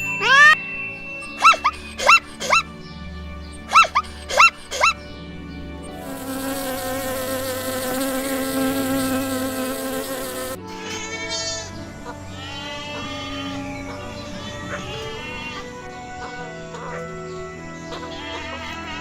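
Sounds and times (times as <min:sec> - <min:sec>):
insect wings buzzing: 0:05.9 - 0:10.6.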